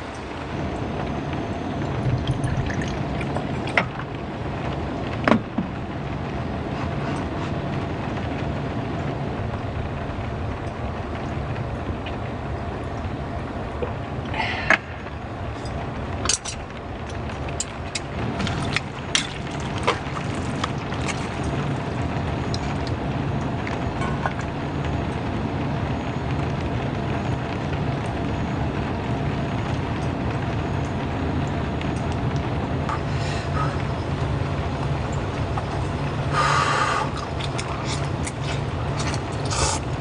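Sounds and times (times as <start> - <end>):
heavy rain on a car roof: 0.0 - 40.0.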